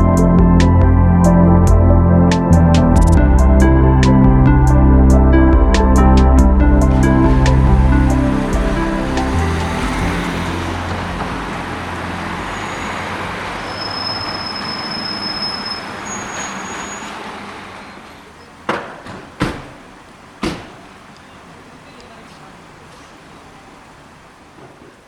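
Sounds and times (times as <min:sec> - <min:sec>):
background music: 0:00.0 - 0:13.7
steady rushing noise: 0:00.0 - 0:14.4
sharp knocks: 0:18.7 - 0:19.8, 0:20.4 - 0:20.8.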